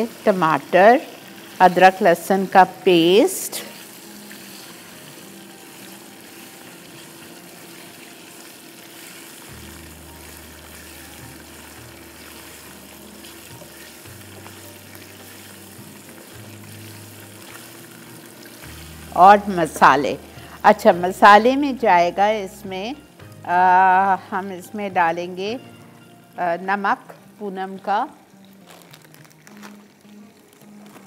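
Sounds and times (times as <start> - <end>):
chicken and onions sizzling in oil: 0.0 - 31.0
soft background music: 0.0 - 31.0.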